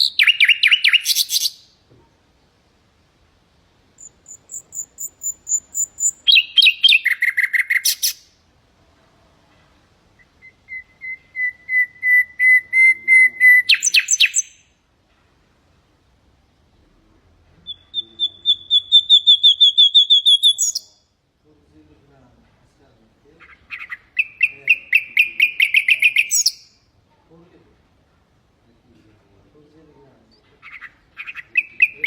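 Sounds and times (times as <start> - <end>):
nightingale singing: 0.0 - 1.8, 4.0 - 8.4, 10.1 - 14.8, 17.6 - 21.2, 23.4 - 26.9, 30.3 - 32.0.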